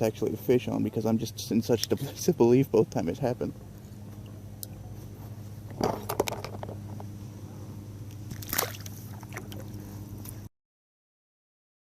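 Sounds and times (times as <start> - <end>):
steady low hum: 0.0 - 10.5
water sloshing and splashing: 8.2 - 10.4.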